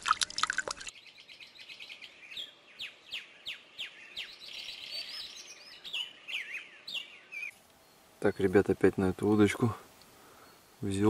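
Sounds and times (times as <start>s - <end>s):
songbird chirping: 0.3s - 11.0s.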